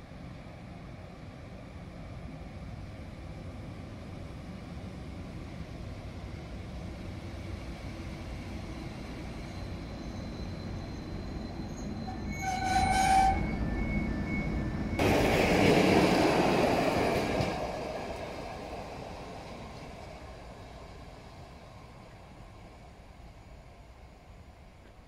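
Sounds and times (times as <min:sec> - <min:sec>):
electric locomotive rumble: 0:05.1 - 0:25.0
train horn blast: 0:12.4 - 0:13.5.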